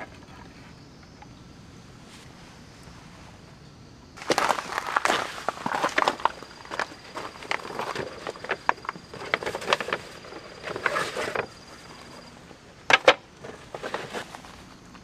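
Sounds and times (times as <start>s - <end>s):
rustling: 4.2s - 15.0s.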